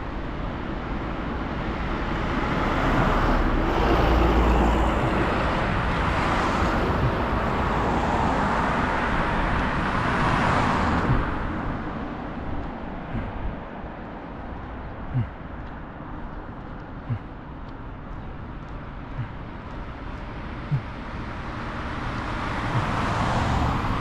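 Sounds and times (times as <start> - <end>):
road and tyre noise: 0.0 - 24.0.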